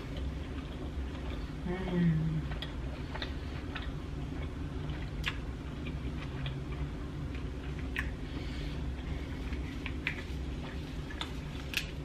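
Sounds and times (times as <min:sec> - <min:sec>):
chewing with mouth closed: 0:00.0 - 0:12.0
wet mouth clicks and smacks: 0:02.5 - 0:06.6, 0:07.7 - 0:08.2.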